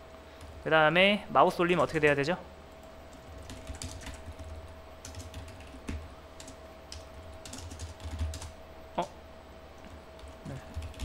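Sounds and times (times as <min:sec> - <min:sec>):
faint steady hum: 0:00.0 - 0:11.0
typing on keyboard: 0:03.1 - 0:08.6, 0:10.2 - 0:11.0.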